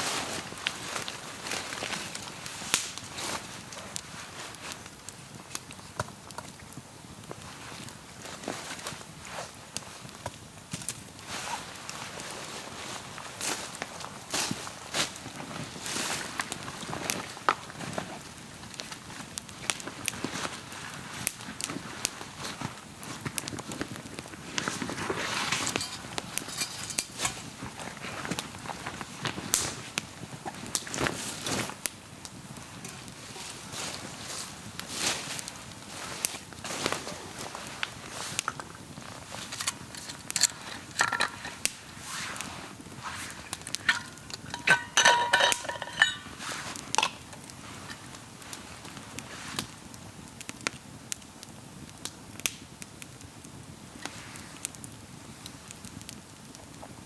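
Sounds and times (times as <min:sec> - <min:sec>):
burning wood popping: 0:00.0 - 0:57.0
campfire crackling: 0:00.0 - 0:57.0
metal cookware clinking: 0:25.6 - 0:27.1, 0:39.6 - 0:41.6, 0:43.6 - 0:47.3.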